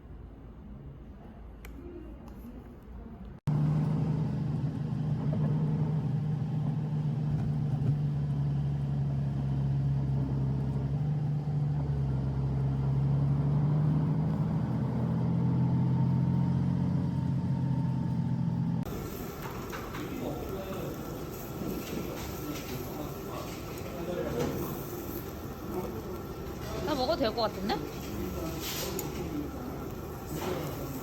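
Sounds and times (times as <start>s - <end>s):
road vehicle droning: 3.5s - 18.9s.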